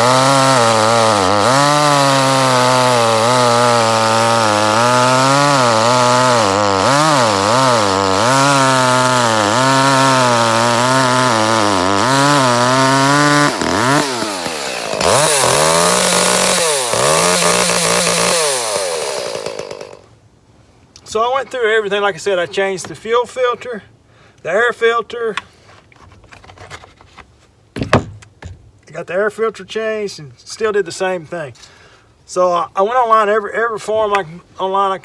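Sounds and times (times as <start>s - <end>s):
chainsaw engine at high revs: 0.0s - 20.0s.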